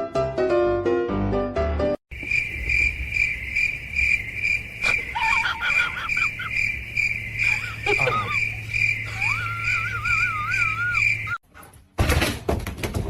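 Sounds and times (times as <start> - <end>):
piano background music: 0.0 - 2.0
cricket chirping: 2.1 - 11.4.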